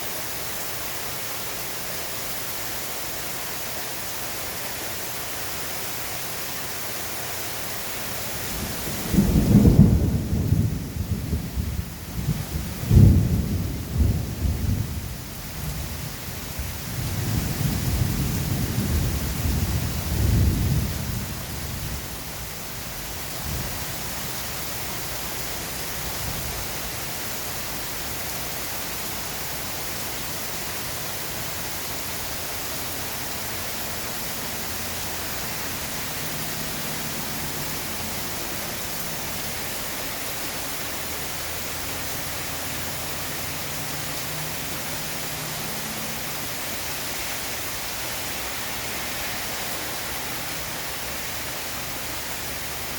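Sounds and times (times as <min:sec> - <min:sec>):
heavy rain hiss: 0:00.0 - 0:52.9
thunder rumble: 0:08.3 - 0:28.5.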